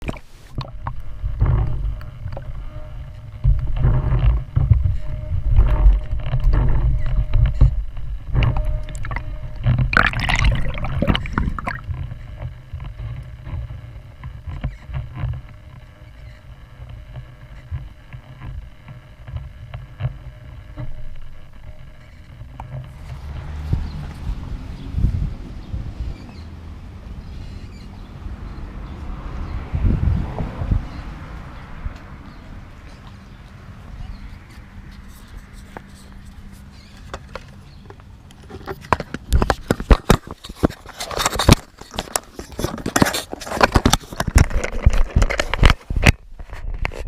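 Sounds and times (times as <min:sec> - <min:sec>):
faint engine tone: 0:01.0 - 0:38.3.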